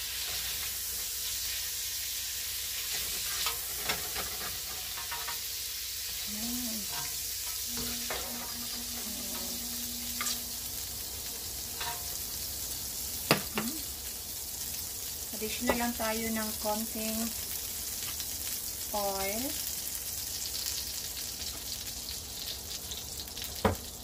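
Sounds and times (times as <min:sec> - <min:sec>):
spatula scraping a pan: 0:00.0 - 0:01.6, 0:02.8 - 0:06.2, 0:06.8 - 0:10.6, 0:11.7 - 0:12.3
shrimp sizzling in hot oil: 0:00.0 - 0:24.0.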